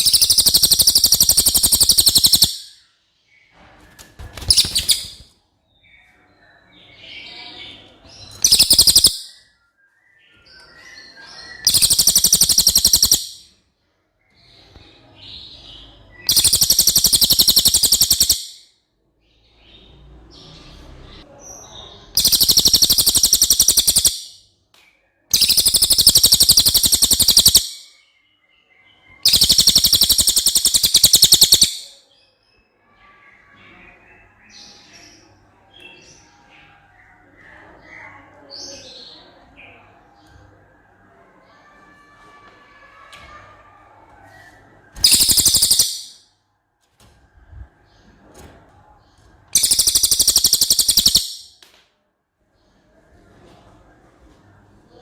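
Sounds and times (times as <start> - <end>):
soft bird twittering: 0.0 - 3.6, 4.2 - 13.5, 15.8 - 18.7, 19.5 - 24.4, 25.3 - 32.0, 44.4 - 46.3, 49.6 - 51.6.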